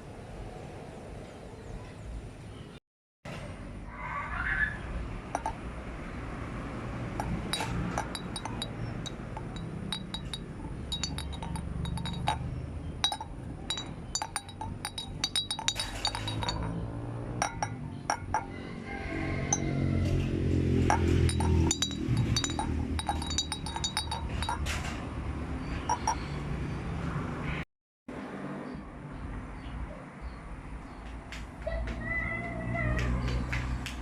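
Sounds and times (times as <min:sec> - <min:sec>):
light clinks of small objects: 0:07.2 - 0:18.3, 0:20.9 - 0:24.9.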